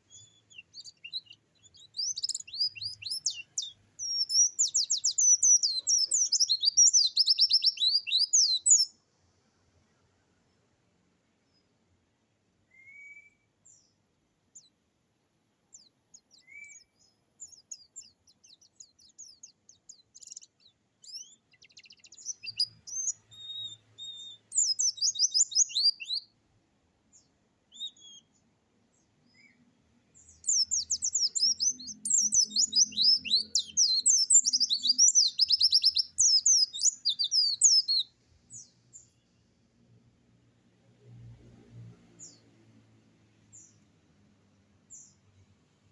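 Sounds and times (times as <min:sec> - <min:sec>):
songbird singing rapidly: 0:00.0 - 0:09.0, 0:15.7 - 0:26.3, 0:27.7 - 0:28.4, 0:30.2 - 0:39.3
short high bird calls: 0:30.4 - 0:38.1.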